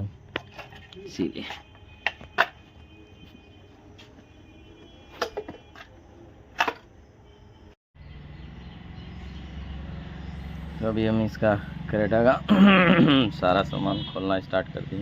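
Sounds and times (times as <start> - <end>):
hand tools and metal clinking: 0.3 - 3.4, 5.0 - 6.9.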